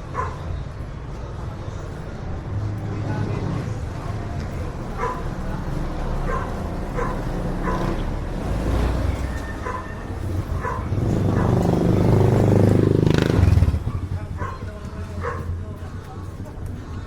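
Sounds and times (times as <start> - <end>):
low traffic rumble: 0.0 - 17.0
vehicle passing close: 2.5 - 14.3.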